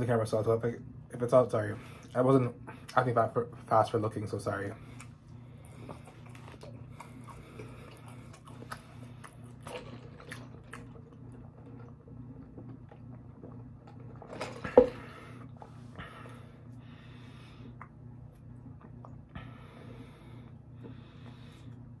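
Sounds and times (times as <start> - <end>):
steady low hum: 0.0 - 22.0
chewing and crunching fries: 4.8 - 15.7.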